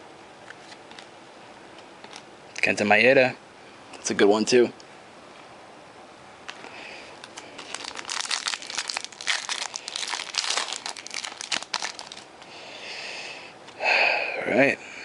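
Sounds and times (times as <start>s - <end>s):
foil wrapper crinkling: 7.2s - 12.4s.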